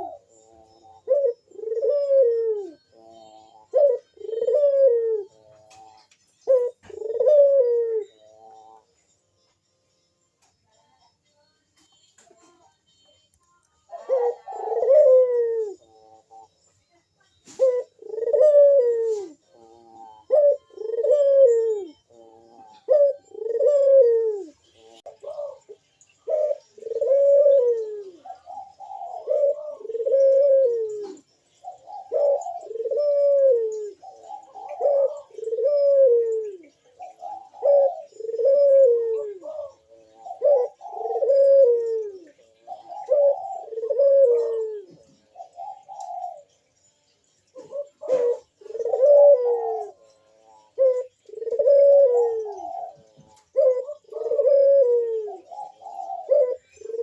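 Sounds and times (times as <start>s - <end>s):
dove cooing: 0.0s - 9.0s, 13.9s - 16.6s, 17.4s - 46.8s, 47.4s - 57.0s.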